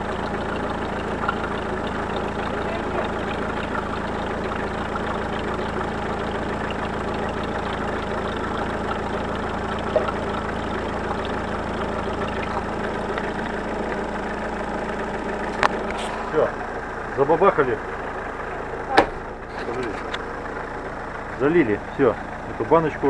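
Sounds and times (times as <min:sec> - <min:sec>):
car engine idling: 0:00.0 - 0:23.0
light fine rattle: 0:18.7 - 0:20.5.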